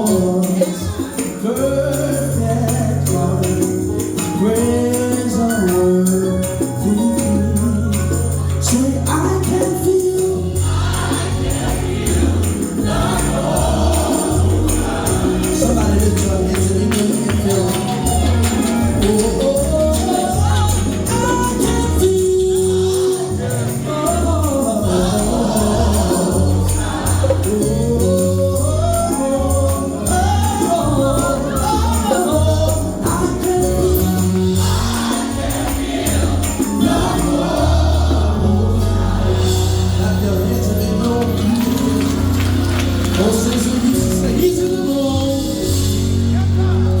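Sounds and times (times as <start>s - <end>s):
tambourine: 0.0s - 47.0s
vocal group singing gospel: 0.0s - 47.0s
low bass line: 4.4s - 47.0s.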